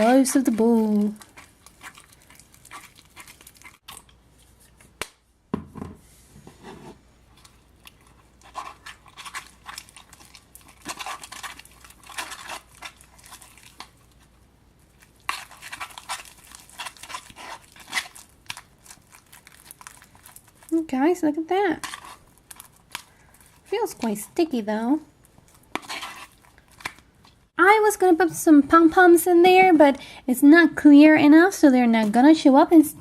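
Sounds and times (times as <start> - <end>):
slime squelching in a bowl: 0.0 - 5.0, 7.1 - 27.5.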